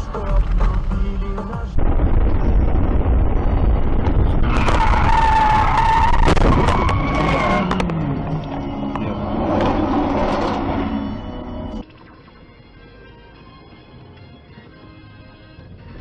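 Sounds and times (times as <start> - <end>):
road and engine rumble: 0.0 - 16.0
car tyres screeching: 3.8 - 11.8.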